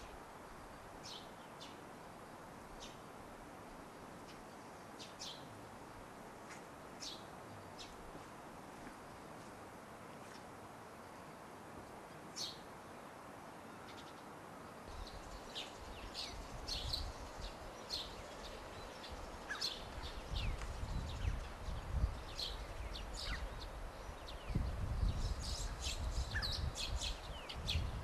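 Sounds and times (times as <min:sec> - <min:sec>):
steady hiss: 0:00.0 - 0:28.0
small birds chirping: 0:01.0 - 0:01.8, 0:04.2 - 0:05.5, 0:06.5 - 0:08.0, 0:14.9 - 0:28.0.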